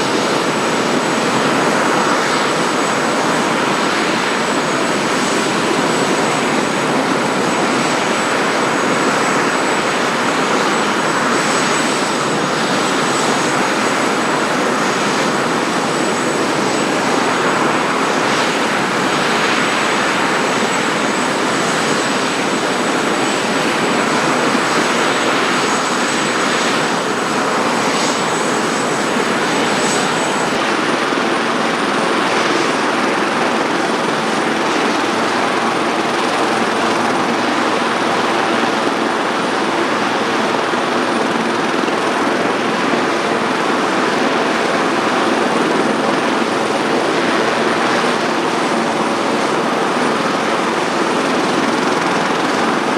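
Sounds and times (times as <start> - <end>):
helicopter engines and rotor running: 0.0 - 52.9.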